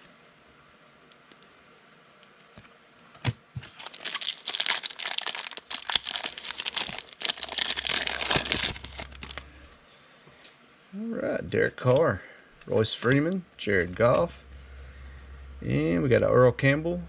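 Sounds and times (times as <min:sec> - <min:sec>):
foil wrapper crinkling and tearing: 0:03.6 - 0:09.5.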